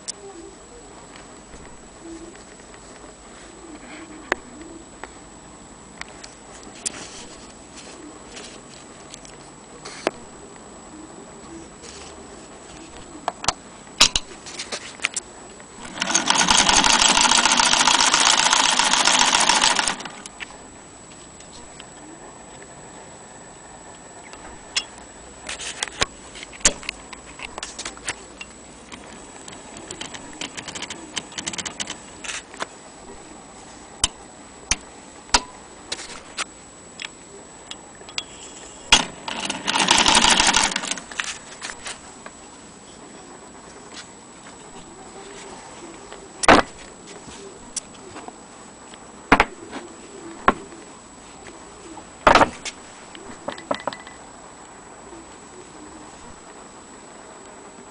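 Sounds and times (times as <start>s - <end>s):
mechanism clicks and knocks: 13.4s - 14.3s, 28.4s - 32.4s, 38.9s - 41.4s
sewing machine running: 15.8s - 20.3s, 39.0s - 41.1s.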